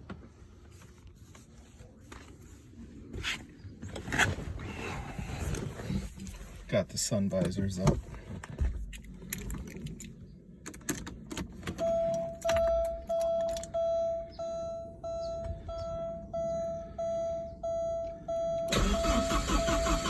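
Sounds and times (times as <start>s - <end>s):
dashboard warning chime beeping: 11.7s - 19.9s
starter cranking engine: 18.7s - 20.0s.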